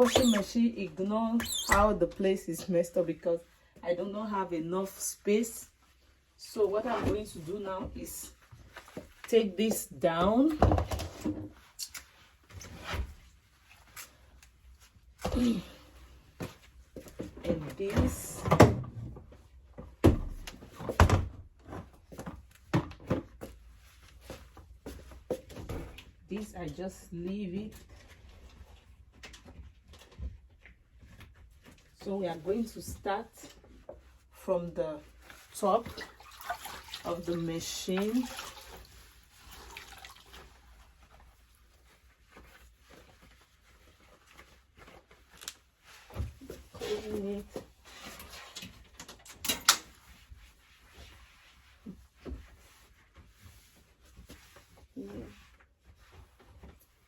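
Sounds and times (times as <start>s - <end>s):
cloth wiping a surface: 38.0s - 48.4s, 49.9s - 57.0s.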